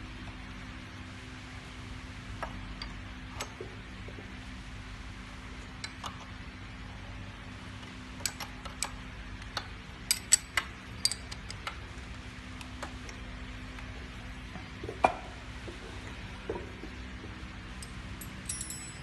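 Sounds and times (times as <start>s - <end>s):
faint steady hum: 0.0s - 19.0s
hand tools clinking on steel: 17.8s - 19.0s.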